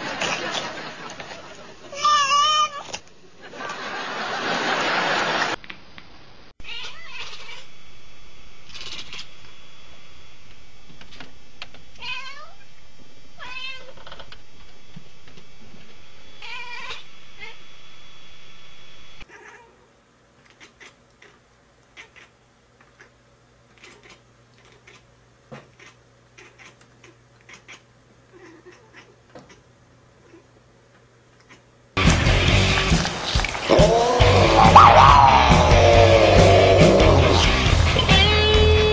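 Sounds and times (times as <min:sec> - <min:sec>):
cat meowing: 0:06.6 - 0:07.7, 0:12.0 - 0:12.6, 0:13.4 - 0:13.9, 0:16.4 - 0:17.6, 0:19.3 - 0:19.8, 0:33.9 - 0:37.4.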